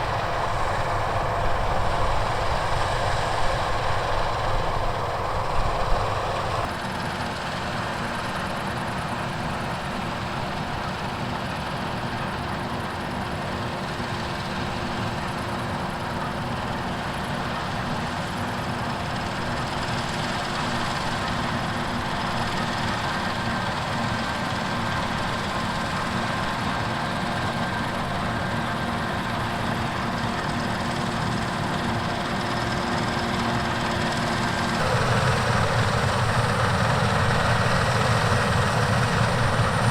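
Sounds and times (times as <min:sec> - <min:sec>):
heavy machinery engine drone: 0:00.0 - 0:39.9
machine whining tones: 0:30.9 - 0:39.9.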